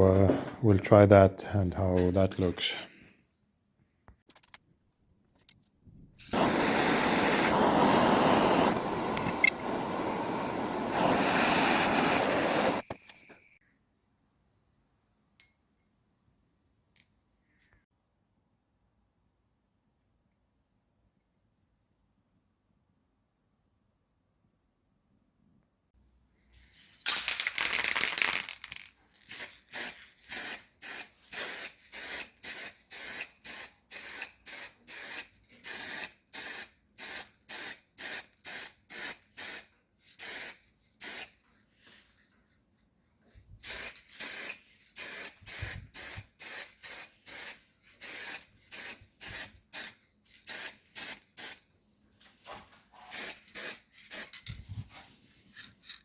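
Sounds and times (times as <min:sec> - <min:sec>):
sprayer hissing: 0:06.2 - 0:12.9.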